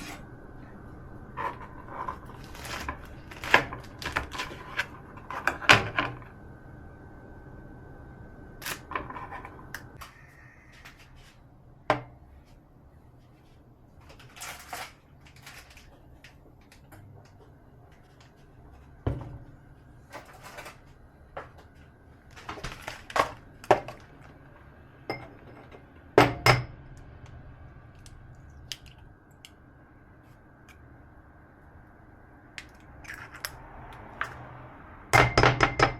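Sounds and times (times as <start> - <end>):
dishes and utensils knocking: 25.1 - 26.7, 35.2 - 35.9.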